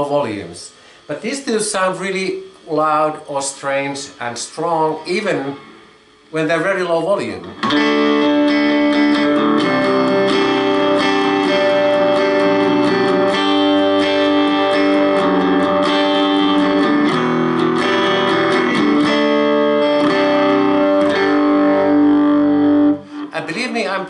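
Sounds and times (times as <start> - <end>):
electric guitar chords and notes: 7.4 - 24.0.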